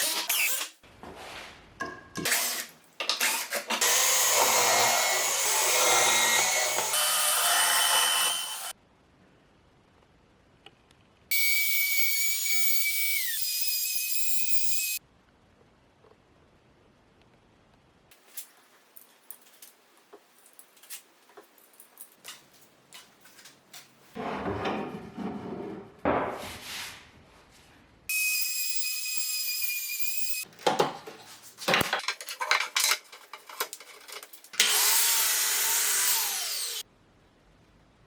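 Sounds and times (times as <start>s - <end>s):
high-pitched power tool: 3.8s - 8.7s, 11.3s - 15.0s, 28.1s - 30.4s, 34.6s - 36.8s.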